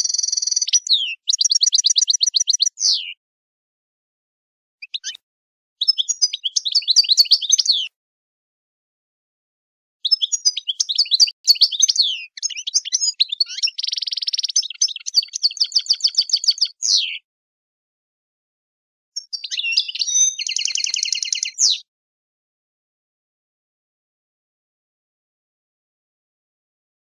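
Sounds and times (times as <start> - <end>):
songbird singing: 0.0 - 3.2, 4.8 - 5.2, 5.8 - 7.9, 10.0 - 17.2, 19.2 - 21.9.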